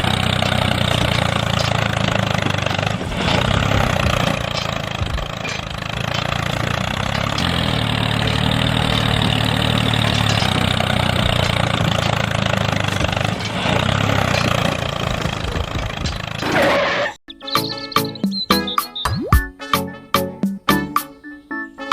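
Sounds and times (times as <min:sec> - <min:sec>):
engine idling hum: 0:00.0 - 0:16.5.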